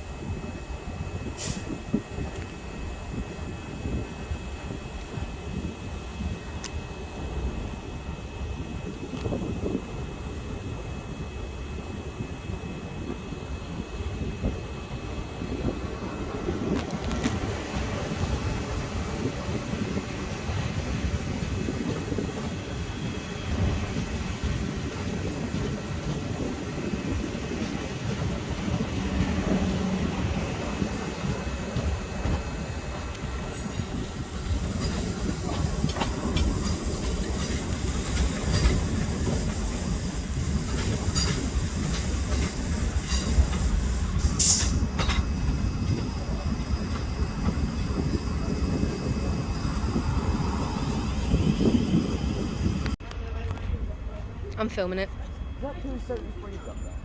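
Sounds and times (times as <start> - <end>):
train rumbling on track: 0.0 - 57.0
train wheel clicks: 16.6 - 22.4, 23.5 - 49.8.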